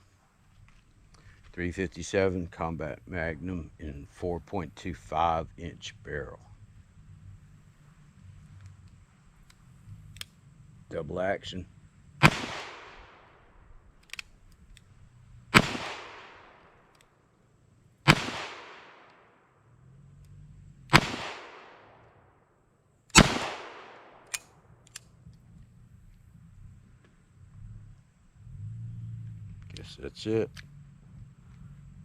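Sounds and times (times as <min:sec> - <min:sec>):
faint clicks: 0:08.4 - 0:10.4, 0:14.0 - 0:15.2, 0:16.8 - 0:17.2, 0:24.2 - 0:26.3
revolver shots with echo: 0:12.2 - 0:13.4, 0:15.5 - 0:16.7, 0:18.1 - 0:19.3, 0:20.9 - 0:22.0, 0:23.1 - 0:24.3.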